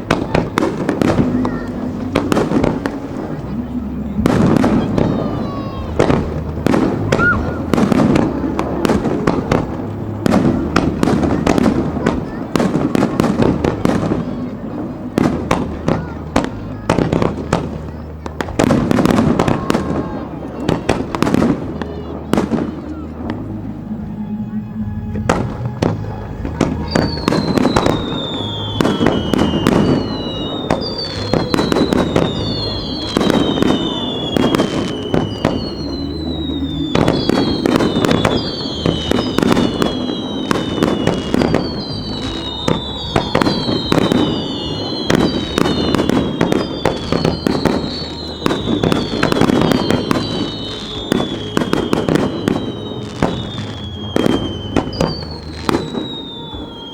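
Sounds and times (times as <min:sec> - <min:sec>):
fireworks bursting: 0:00.0 - 0:56.9
fireworks whistles sliding down: 0:00.4 - 0:08.5, 0:22.0 - 0:56.9.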